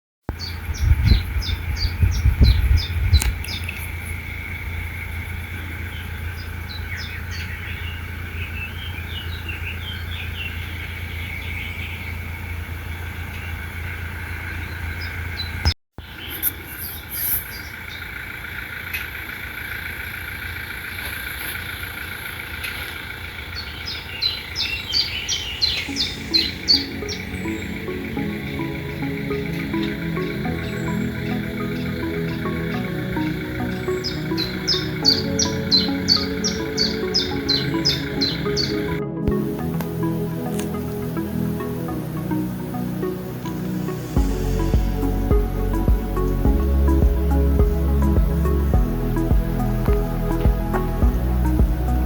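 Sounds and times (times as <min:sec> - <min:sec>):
small birds chirping: 0:00.3 - 0:52.0
wind thumps on microphone: 0:00.4 - 0:03.9
low outdoor rumble: 0:00.4 - 0:52.0.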